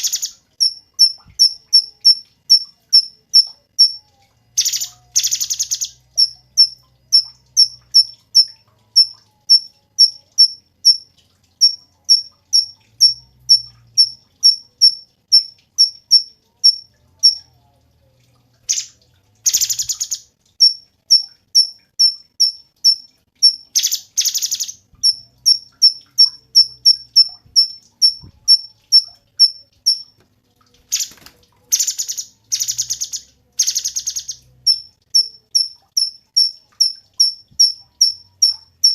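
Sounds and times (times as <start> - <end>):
songbird piping notes: 0.0 - 11.0.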